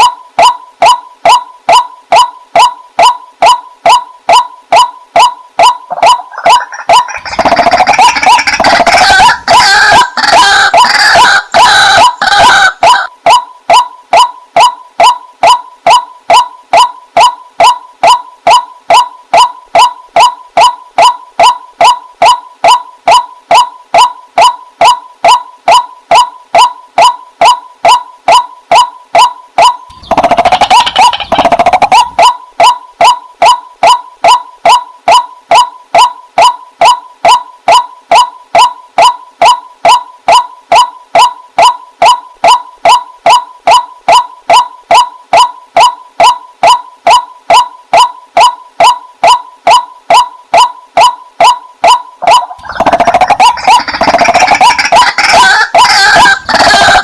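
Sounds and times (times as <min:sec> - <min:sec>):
waterhen croaking calls: 0:01.7 - 0:14.3, 0:29.9 - 0:32.8, 0:52.2 - 0:57.0.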